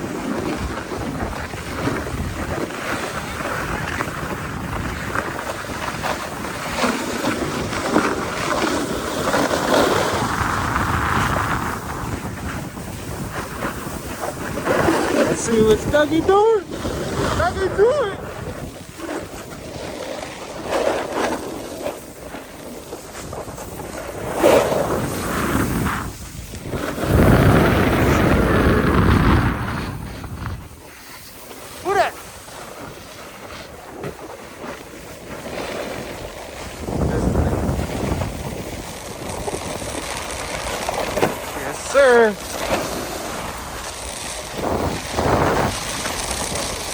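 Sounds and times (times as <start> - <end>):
snowboard scraping snow: 0.0 - 46.9
wind on microphone: 0.0 - 46.9.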